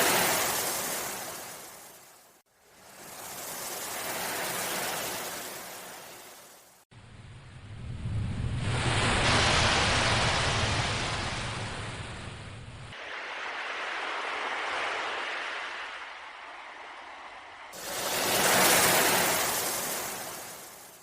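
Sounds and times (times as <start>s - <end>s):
ocean waves washing ashore: 0.0s - 21.0s
low rumble: 7.0s - 13.0s.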